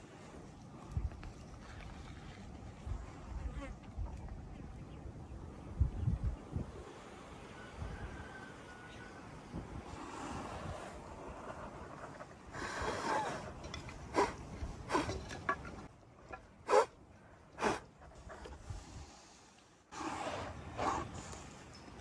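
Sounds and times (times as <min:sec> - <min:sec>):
goats and sheep snorting: 0:09.9 - 0:15.6, 0:17.6 - 0:21.5.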